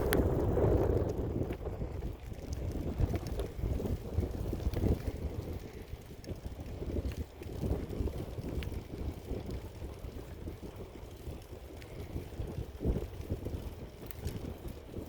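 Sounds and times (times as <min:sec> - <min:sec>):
faint clicks: 0:00.0 - 0:03.6, 0:14.0 - 0:14.5
wind buffeting microphone: 0:00.0 - 0:15.0.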